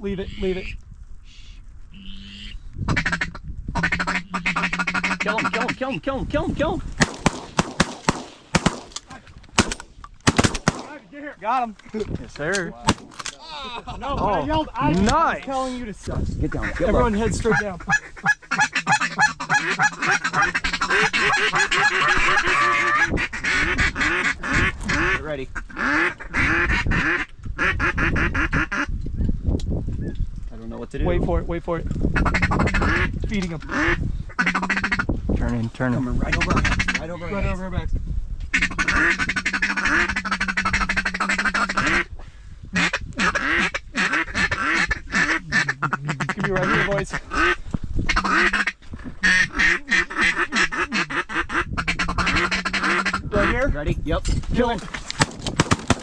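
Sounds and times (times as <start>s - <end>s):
duck calls quacking: 1.3s - 6.0s, 16.6s - 28.9s, 32.2s - 35.1s, 36.2s - 37.4s, 38.5s - 42.1s, 42.8s - 53.7s.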